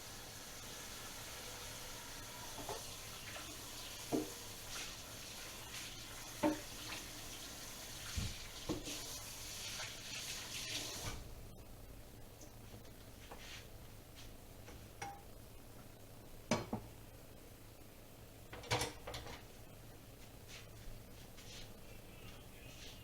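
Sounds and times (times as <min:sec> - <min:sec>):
water running at sink: 0:00.0 - 0:11.3.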